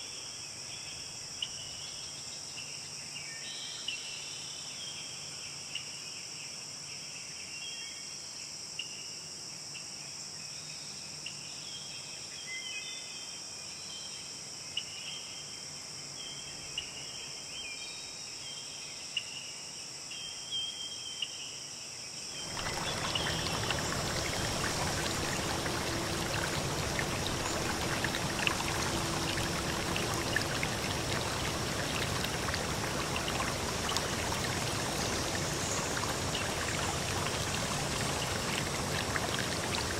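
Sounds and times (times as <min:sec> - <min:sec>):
insects droning: 0:22.4 - 0:39.9
stream rushing: 0:22.4 - 0:39.9.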